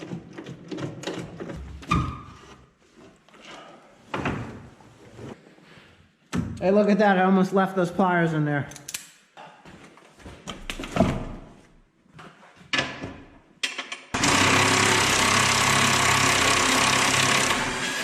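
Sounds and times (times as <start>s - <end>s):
tools clicking and knocking: 0.0s - 2.0s, 12.7s - 14.2s
power tool running: 14.2s - 18.0s.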